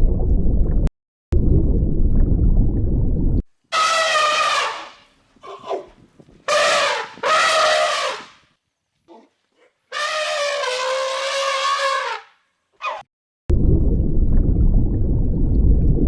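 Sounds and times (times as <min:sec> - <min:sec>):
animal calling: 0:03.7 - 0:08.4, 0:09.1 - 0:13.0.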